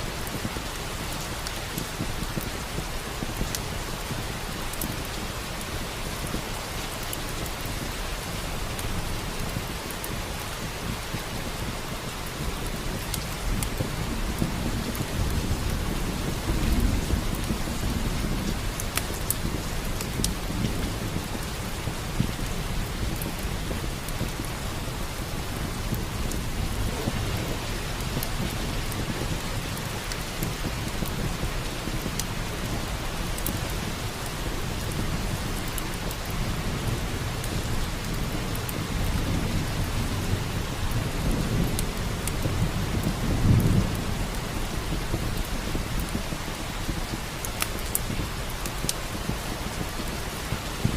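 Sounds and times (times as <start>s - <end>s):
heavy rain: 0.0s - 50.9s
wood fire crackling: 0.0s - 50.9s
thunder rolling: 13.8s - 32.1s.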